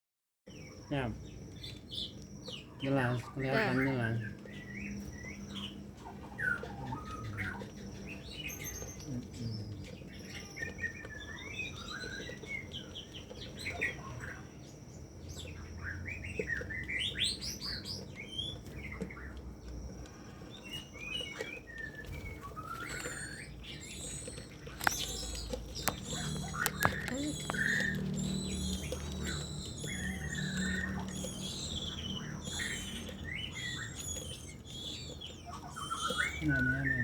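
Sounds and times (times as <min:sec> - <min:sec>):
birds chirping: 0:00.5 - 0:37.0
faint steady high tone: 0:21.7 - 0:37.0.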